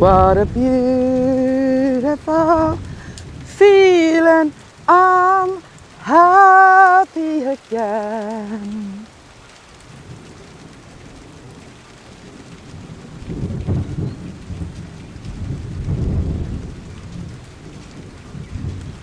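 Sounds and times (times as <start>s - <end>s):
low rumbling: 0.0s - 5.6s
steady rain falling: 0.0s - 19.0s.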